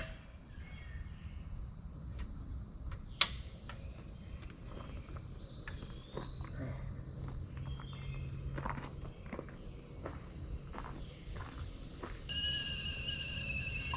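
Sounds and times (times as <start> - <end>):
crickets chirring: 0.0 - 13.9
sharp snaps: 2.9 - 3.8.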